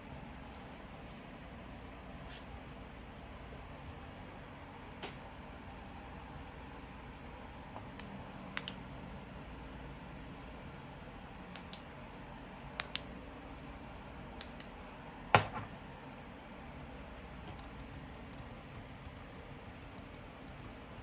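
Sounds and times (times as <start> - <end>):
faint steady hum: 0.0 - 21.0
light clicks: 7.8 - 8.8, 12.7 - 13.1.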